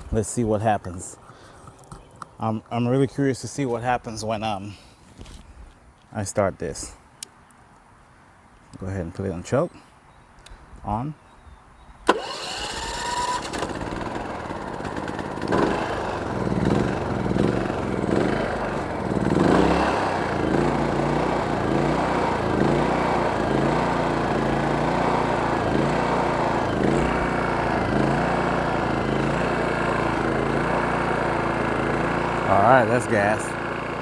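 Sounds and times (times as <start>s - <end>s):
generator engine running: 12.1s - 34.0s.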